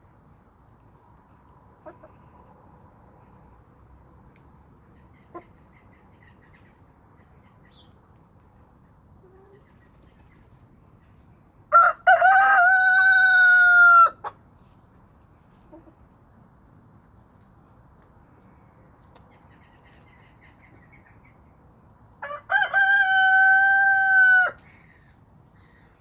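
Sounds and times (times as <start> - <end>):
rooster crowing: 11.7 - 14.2, 22.2 - 24.6.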